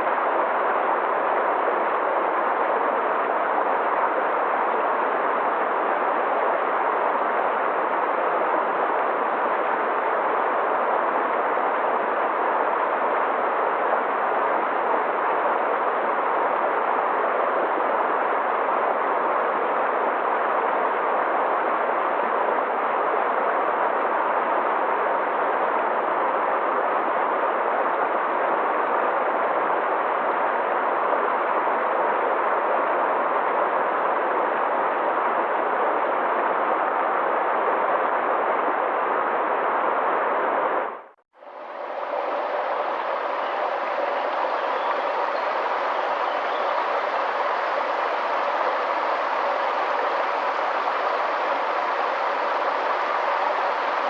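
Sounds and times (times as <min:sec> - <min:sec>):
river rushing over rocks: 0:41.4 - 0:54.0.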